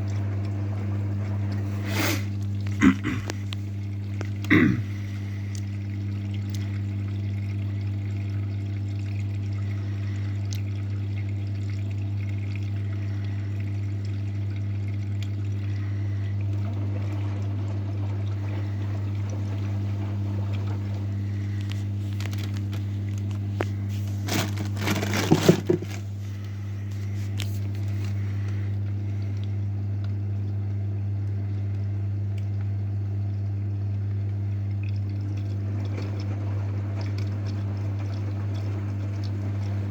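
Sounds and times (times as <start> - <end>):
washing machine hum: 0.0 - 39.9
water sloshing in washing machine: 0.0 - 39.9
knocks or splashes: 23.6 - 26.1.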